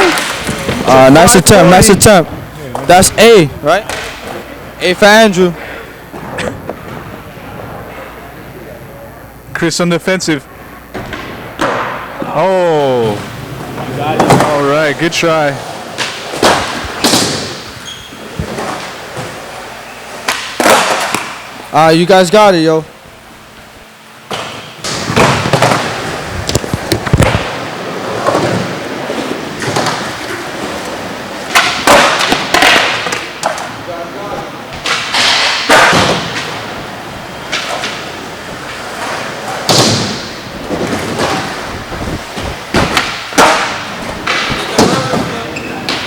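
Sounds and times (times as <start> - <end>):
skateboard wheels rolling: 0.0 - 4.8, 10.6 - 21.6, 24.3 - 46.0
skateboard striking ground: 10.9 - 12.3, 20.2 - 21.4, 24.3 - 33.8, 34.8 - 36.8, 37.4 - 46.0
skateboard impacts and pops: 24.9 - 27.6, 31.5 - 33.6.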